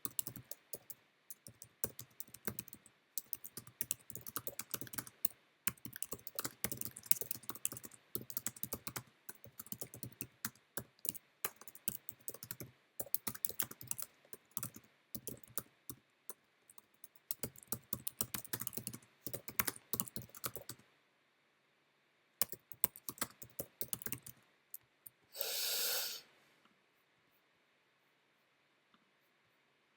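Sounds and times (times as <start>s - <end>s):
fast typing on keyboard: 0.0s - 15.7s, 16.7s - 20.8s, 22.4s - 24.4s.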